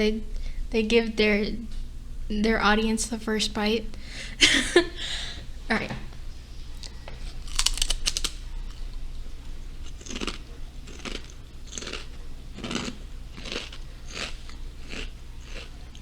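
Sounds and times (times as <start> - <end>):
crunching potato chip: 6.8 - 9.0, 9.8 - 16.0.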